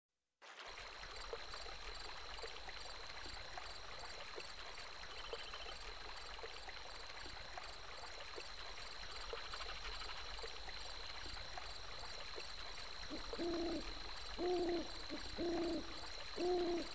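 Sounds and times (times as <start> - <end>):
flowing stream: 0.4 - 16.9
cricket chirps: 0.6 - 16.9
high insect drone: 9.7 - 16.9
frog calls: 13.0 - 16.9.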